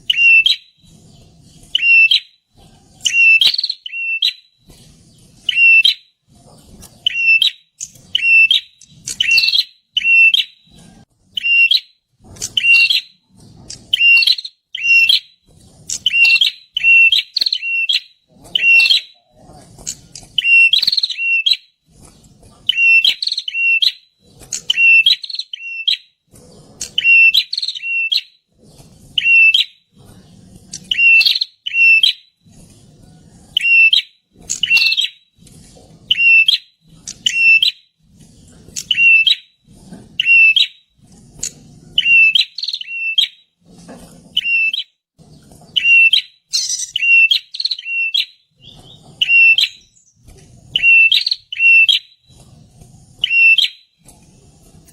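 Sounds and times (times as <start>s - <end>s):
bird calling with sharp high notes: 0.1s - 1.0s, 1.6s - 2.4s, 3.0s - 4.5s, 5.4s - 6.1s, 7.0s - 10.7s, 11.3s - 13.2s, 13.9s - 19.3s, 19.9s - 21.7s, 22.7s - 26.1s, 26.8s - 28.4s, 29.2s - 29.8s, 30.8s - 32.3s, 33.6s - 35.2s, 36.1s - 37.8s, 38.8s - 39.5s, 40.2s - 40.8s, 42.0s - 43.4s, 44.4s - 44.9s, 45.8s - 50.2s, 50.8s - 52.2s, 53.2s - 53.9s.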